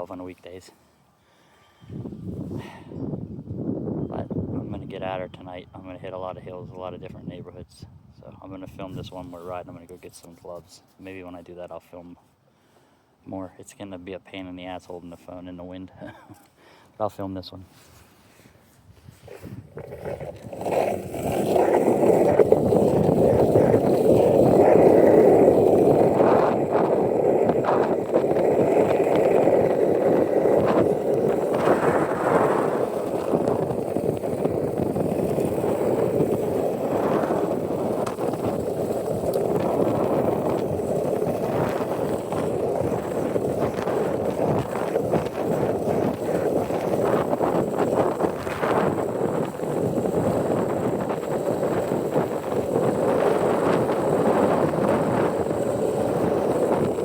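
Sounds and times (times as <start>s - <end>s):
wind buffeting microphone: 1.8s - 9.8s, 18.8s - 57.0s
skateboard wheels rolling on pavement: 19.0s - 57.0s.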